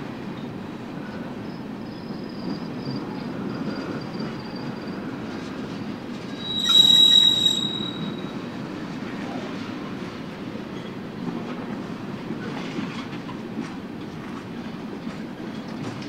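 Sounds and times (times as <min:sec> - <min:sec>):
high wheel squeal: 0:06.2 - 0:08.5.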